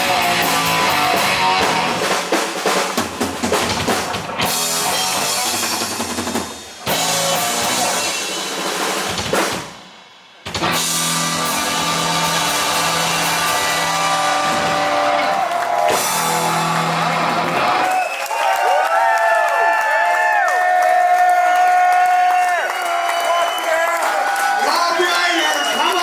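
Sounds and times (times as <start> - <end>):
heavy metal band playing live: 0.0 - 18.0.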